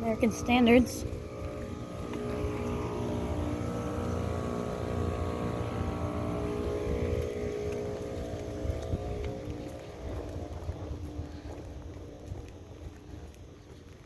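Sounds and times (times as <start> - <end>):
air conditioner unit humming: 0.0 - 12.2
low rumble: 0.0 - 13.1.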